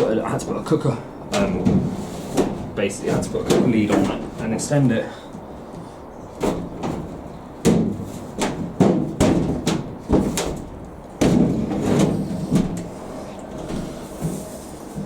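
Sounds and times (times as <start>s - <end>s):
knocks and thumps of dryer cabinet: 1.3s - 4.8s, 6.4s - 12.9s.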